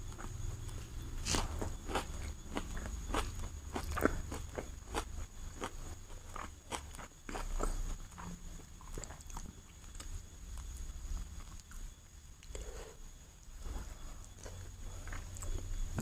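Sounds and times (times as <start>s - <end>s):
wet chewing clicks and smacks: 0.0s - 10.7s.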